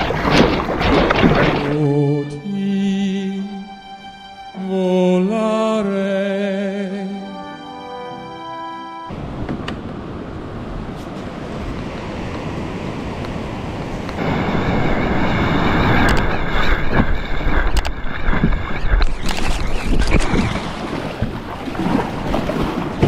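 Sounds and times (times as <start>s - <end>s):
sea water washing around kayak: 0.0s - 2.3s, 9.1s - 23.0s
wind buffeting microphone: 9.1s - 23.0s.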